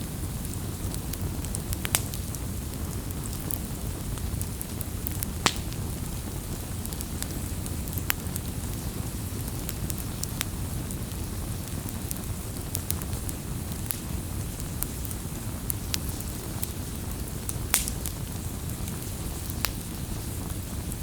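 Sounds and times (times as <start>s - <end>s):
campfire crackling and popping: 0.0s - 21.0s
low rush of burning: 0.0s - 21.0s.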